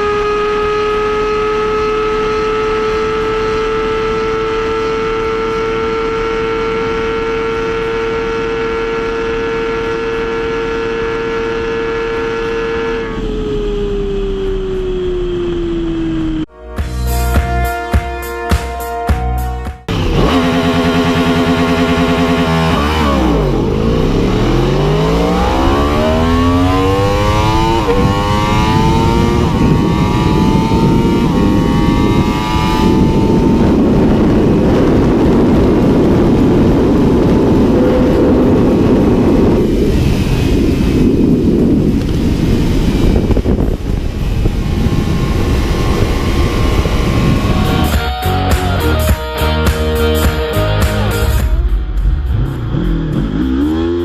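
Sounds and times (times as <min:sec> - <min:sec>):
motorcycle engine accelerating: 0:00.0 - 0:16.5, 0:19.8 - 0:54.0
wind noise at high speed: 0:19.9 - 0:48.8.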